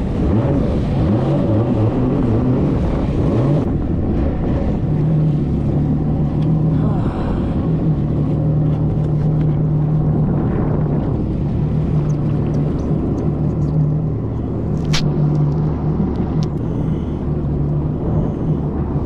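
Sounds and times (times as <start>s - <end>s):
jet ski engine droning: 0.0s - 19.0s
sharp crack or splash: 14.7s - 16.5s.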